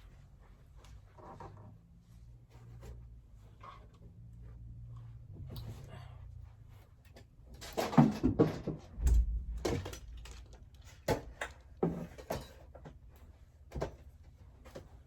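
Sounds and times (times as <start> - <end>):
knocks and thumps: 7.8 - 12.2
heavy low thump: 8.9 - 10.7.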